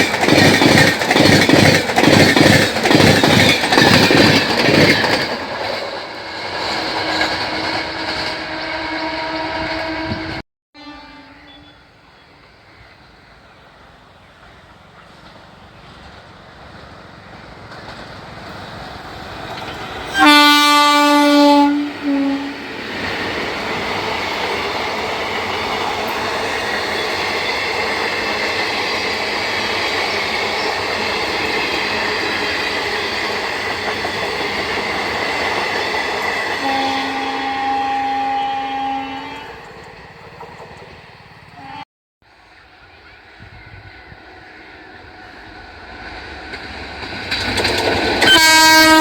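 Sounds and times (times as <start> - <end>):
train coaches rushing over track: 0.0 - 10.4, 11.1 - 49.0
train horn blast: 6.8 - 11.9, 20.1 - 22.7, 36.6 - 39.6, 41.6 - 41.8, 48.2 - 49.0.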